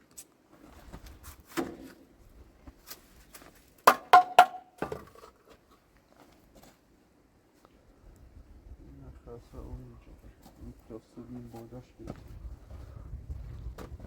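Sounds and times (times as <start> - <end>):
objects knocking and clicking: 3.9 - 5.2.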